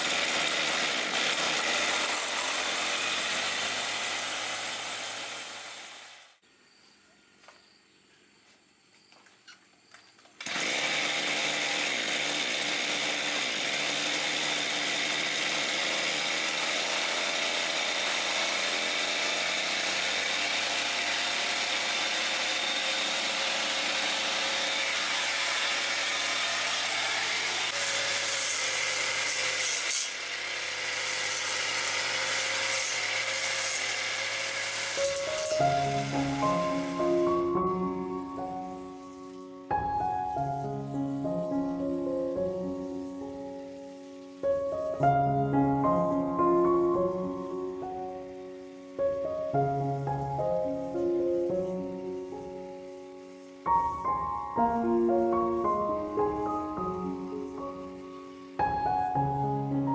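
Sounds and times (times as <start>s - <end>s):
power tool motor whining: 0.0s - 6.3s, 10.4s - 40.0s.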